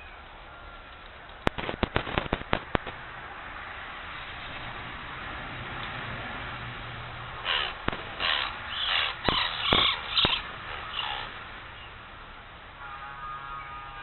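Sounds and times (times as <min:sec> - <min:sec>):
sharp clicks: 0:00.9 - 0:03.0, 0:07.7 - 0:10.5
bird harsh grating calls: 0:07.4 - 0:12.0.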